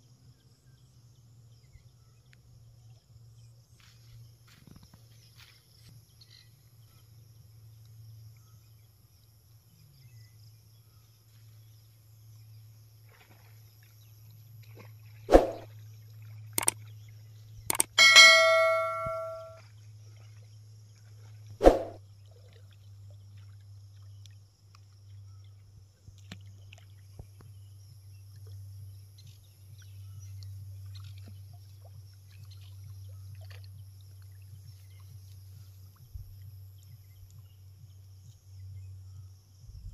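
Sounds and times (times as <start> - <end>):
sharp knocks: 17.7 - 19.5
low hum: 17.7 - 19.6
ringing metallic clang: 17.8 - 19.6.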